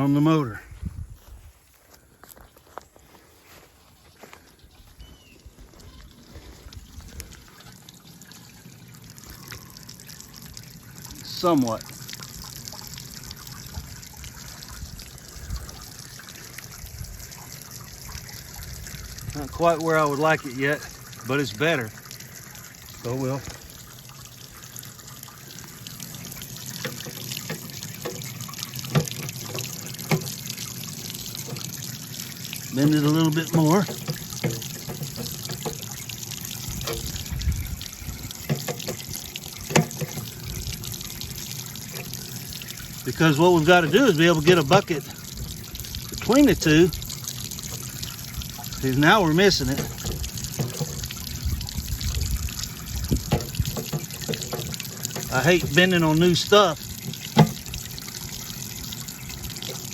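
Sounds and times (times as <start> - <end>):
water trickling: 0.0 - 59.9
sharp knocks: 57.1 - 57.7.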